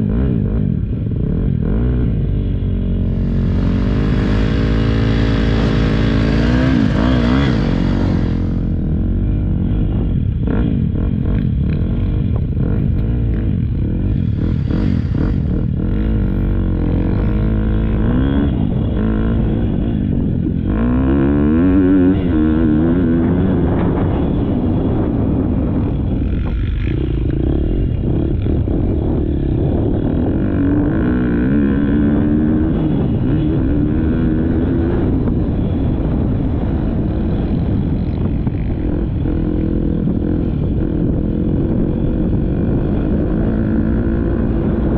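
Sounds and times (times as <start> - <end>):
motocross bike engine revving: 0.0 - 25.4.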